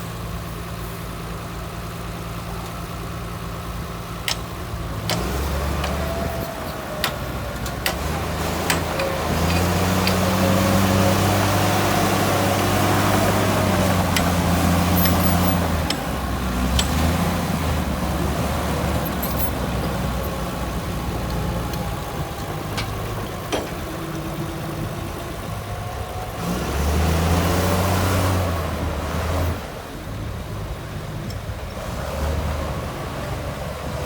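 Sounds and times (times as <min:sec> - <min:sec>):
heavy diesel engine running: 0:00.0 - 0:34.0
clicks and knocks: 0:04.3 - 0:11.0, 0:13.0 - 0:24.3.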